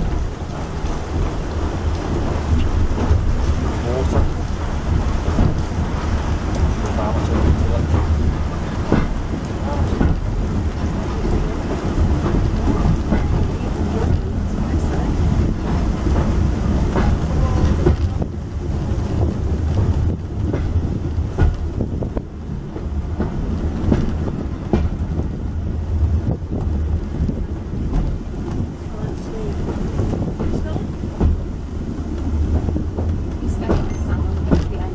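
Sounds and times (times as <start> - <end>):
train rumble: 0.0 - 34.9
wind noise on microphone: 0.0 - 34.9
knocks: 32.5 - 34.9.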